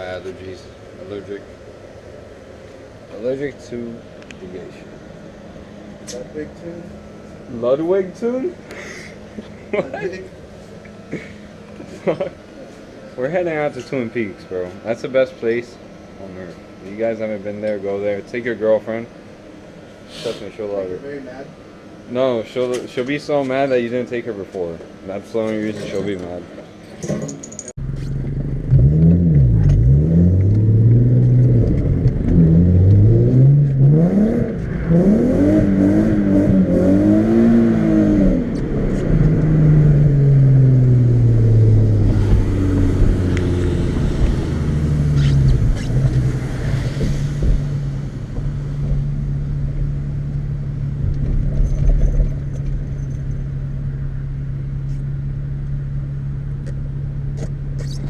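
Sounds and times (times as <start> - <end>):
vehicle engine accelerating: 27.8 - 58.0.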